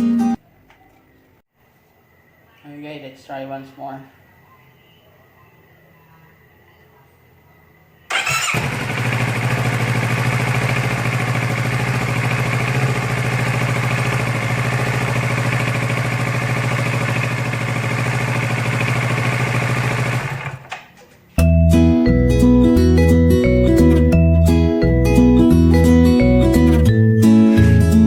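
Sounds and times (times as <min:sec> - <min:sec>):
motorcycle engine starting and idling: 0:08.1 - 0:21.0.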